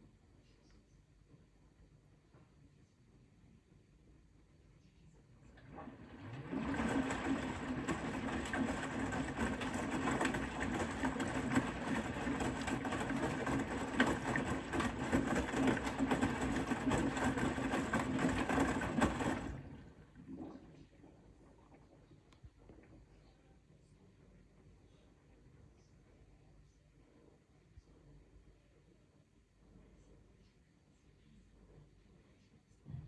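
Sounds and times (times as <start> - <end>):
washing machine drum motor humming: 5.5 - 21.2
small knocks in washing drum: 6.2 - 19.6.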